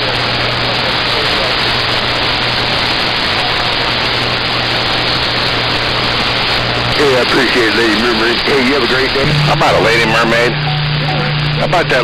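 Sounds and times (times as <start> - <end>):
radio static hiss: 0.0 - 12.0
low hum: 6.2 - 12.0.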